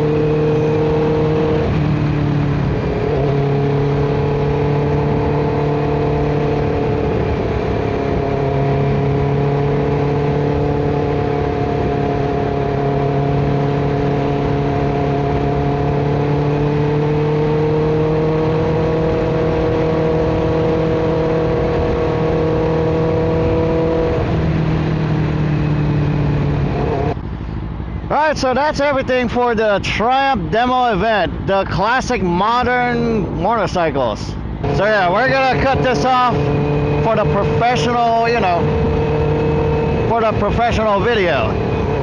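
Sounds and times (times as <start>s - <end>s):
motorcycle engine running: 0.0s - 28.1s, 34.4s - 42.0s
road noise: 0.0s - 42.0s
wind rush: 37.9s - 40.4s.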